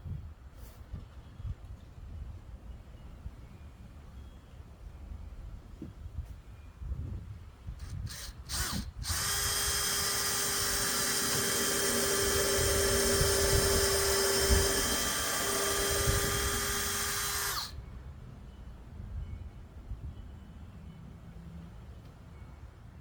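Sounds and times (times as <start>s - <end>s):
electric drill whining: 7.8s - 17.8s.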